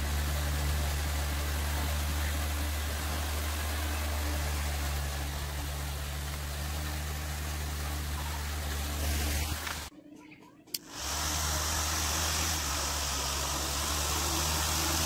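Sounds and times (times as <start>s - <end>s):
motor humming: 0.0s - 9.9s, 10.8s - 15.0s
hiss: 10.8s - 15.0s.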